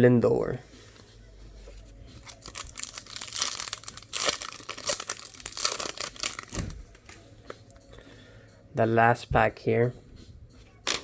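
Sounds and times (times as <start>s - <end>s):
wrapper crinkling and tearing: 2.2s - 7.2s.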